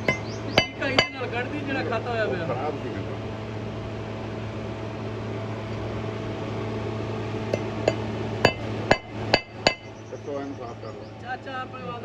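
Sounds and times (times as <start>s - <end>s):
sharp metallic clinks: 0.0s - 1.2s, 7.6s - 9.9s
machine hum: 0.0s - 1.7s, 3.4s - 10.0s.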